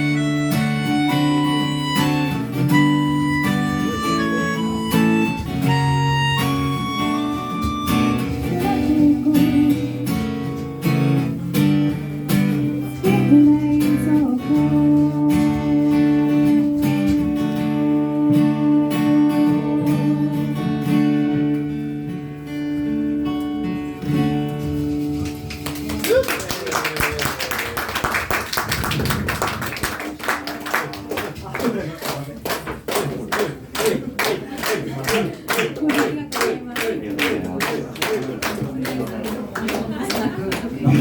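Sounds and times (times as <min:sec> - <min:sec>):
acoustic guitar strummed: 0:00.0 - 0:25.7.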